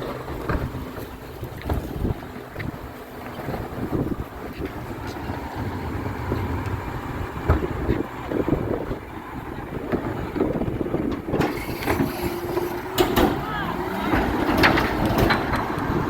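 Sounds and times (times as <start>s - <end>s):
garbage truck engine rumble: 0.0s - 16.0s
knocks and clanks: 3.3s - 9.1s, 9.7s - 16.0s.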